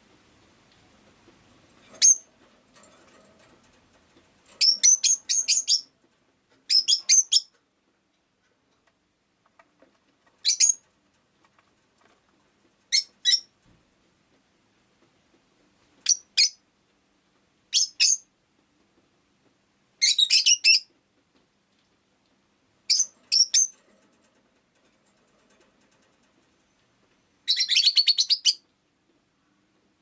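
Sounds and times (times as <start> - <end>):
lovebird chirping: 2.0 - 2.3, 4.6 - 5.9, 6.7 - 7.5, 10.4 - 10.8, 12.9 - 13.5, 16.0 - 16.6, 17.7 - 18.3, 20.0 - 20.9, 22.9 - 23.7, 27.4 - 28.6.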